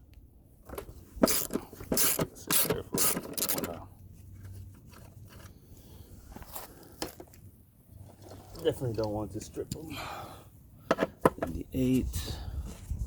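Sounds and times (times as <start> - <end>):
ratchet wrench strokes: 1.2 - 3.7.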